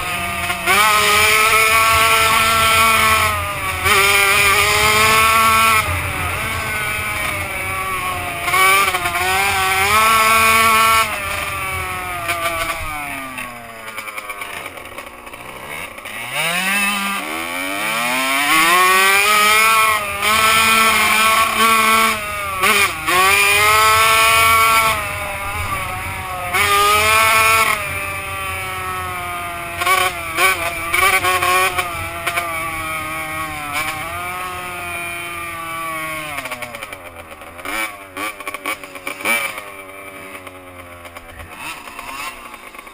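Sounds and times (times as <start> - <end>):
two-stroke motocross engine revving: 0.0 - 42.9.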